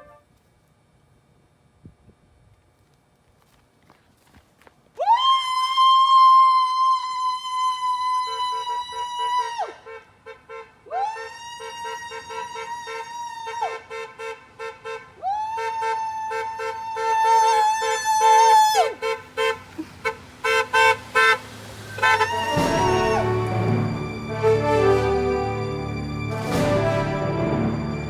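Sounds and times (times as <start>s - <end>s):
emergency vehicle siren: 10.9s - 13.8s, 15.2s - 19.0s, 19.7s - 28.0s
low pulsing siren tone: 21.8s - 28.0s.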